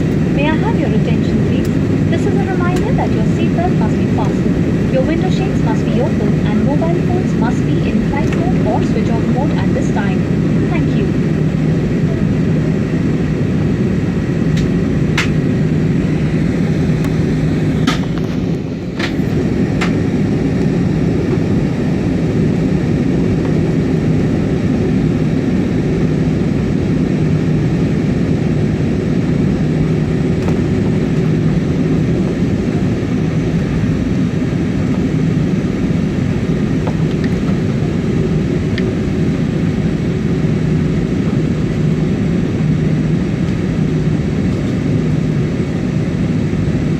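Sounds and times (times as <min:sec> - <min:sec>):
airliner cabin engine roar: 0:00.0 - 0:46.9.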